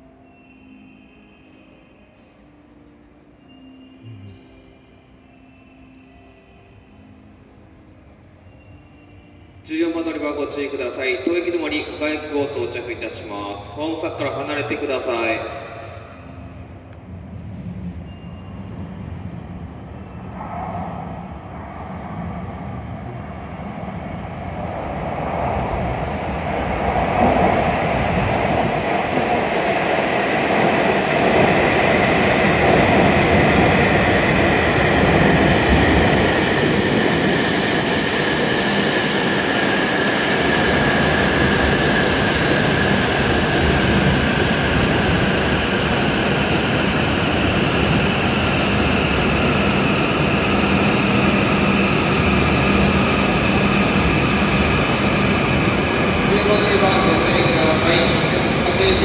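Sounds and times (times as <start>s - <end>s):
train rumble: 14.6s - 59.0s.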